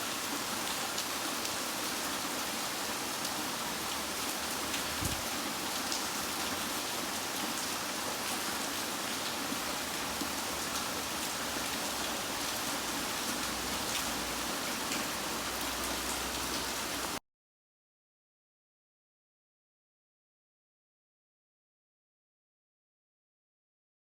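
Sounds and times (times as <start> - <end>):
heavy rain pouring: 0.0 - 17.2
raindrops tapping a surface: 4.8 - 5.3.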